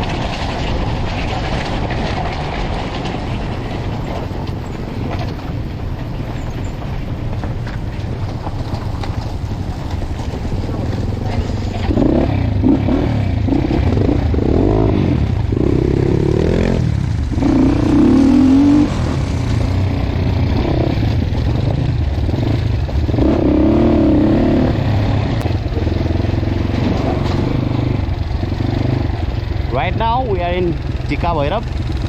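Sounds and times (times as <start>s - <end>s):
dirt bike engine revving: 10.4s - 32.0s.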